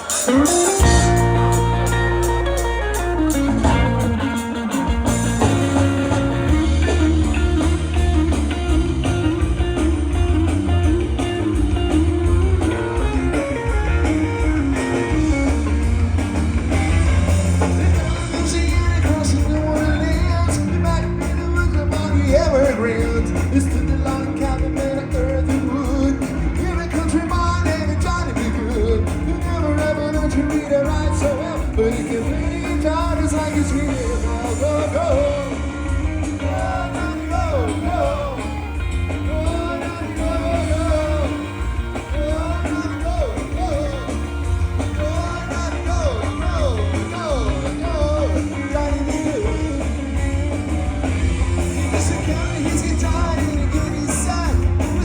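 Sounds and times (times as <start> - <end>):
person singing: 0.0 - 8.8, 17.6 - 50.2, 51.9 - 55.0
bending guitar lines: 0.0 - 55.0
drums: 0.0 - 55.0
heavy bass: 0.0 - 55.0.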